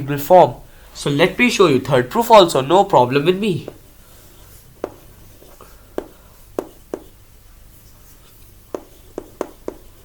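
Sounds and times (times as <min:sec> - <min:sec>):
pen scratching on paper: 0:04.8 - 0:07.2, 0:07.8 - 0:10.0.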